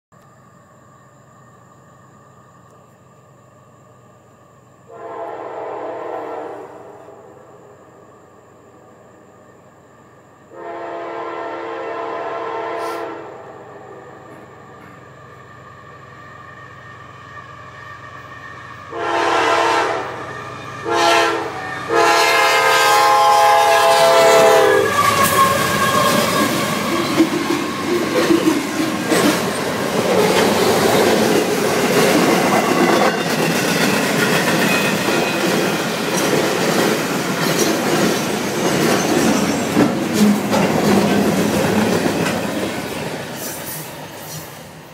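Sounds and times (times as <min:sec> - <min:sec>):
train passing rumble: 0:00.2 - 0:44.9
locomotive horn blasts: 0:04.9 - 0:07.3, 0:10.5 - 0:13.9, 0:18.9 - 0:26.3
wheels clacking over rails: 0:25.0 - 0:44.5.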